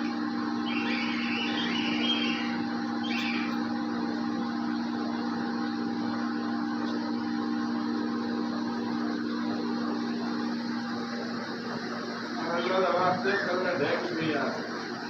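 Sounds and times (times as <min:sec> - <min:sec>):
machine hum: 0:00.0 - 0:15.0
cockatiel chirps: 0:00.6 - 0:03.5.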